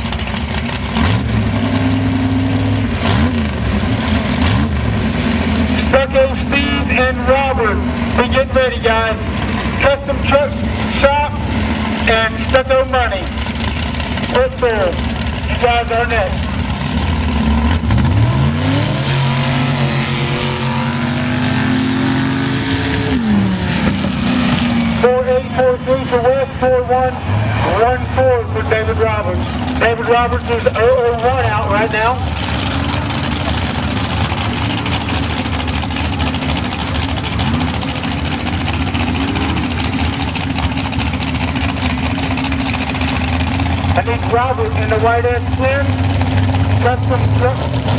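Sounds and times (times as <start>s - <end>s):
truck engine at high revs: 0.0s - 47.9s.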